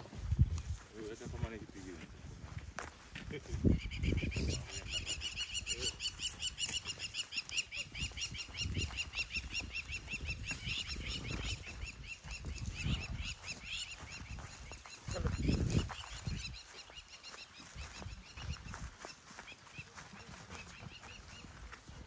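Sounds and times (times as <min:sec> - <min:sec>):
bird chirping rapidly: 0:03.7 - 0:18.8.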